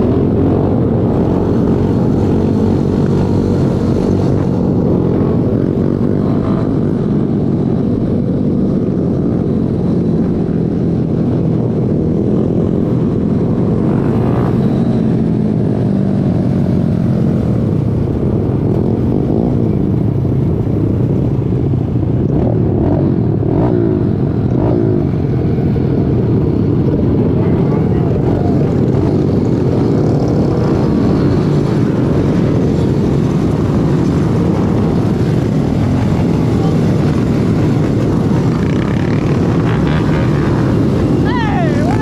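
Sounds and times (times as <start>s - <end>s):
small motorbike engines revving: 11.3s - 16.9s, 26.3s - 42.0s.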